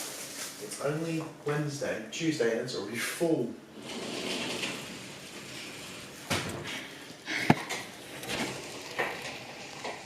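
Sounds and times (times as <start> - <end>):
knocks and clunks of objects: 6.2 - 10.0.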